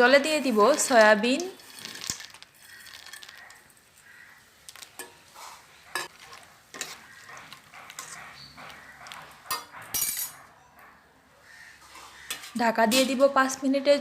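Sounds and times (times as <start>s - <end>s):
spoon stirring in a pot of water: 0.2s - 4.0s, 4.6s - 9.9s
spoon clinking against pot: 5.9s - 8.3s, 9.0s - 10.4s.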